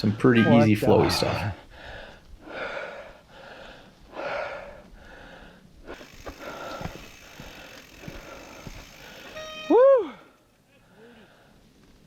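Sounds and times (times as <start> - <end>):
heavy gasping breathing: 1.6 - 9.4.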